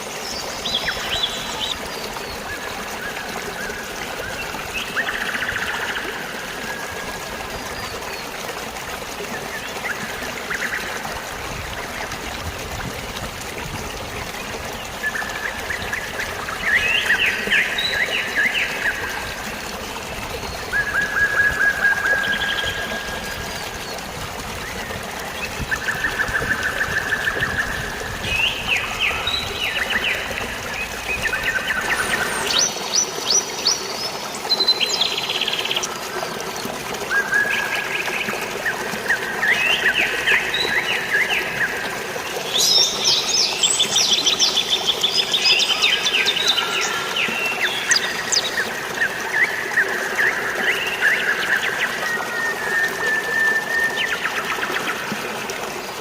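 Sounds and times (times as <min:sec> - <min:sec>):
flowing water: 0:00.0 - 0:56.0
birds chirping and trilling: 0:24.8 - 0:35.9.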